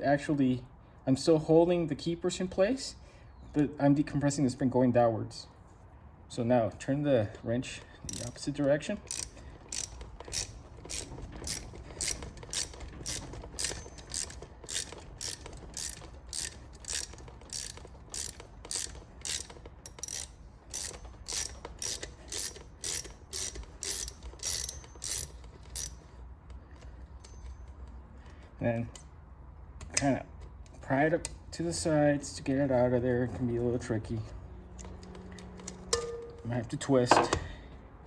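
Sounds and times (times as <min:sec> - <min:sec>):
ratchet wrench clicking: 0:08.1 - 0:28.0.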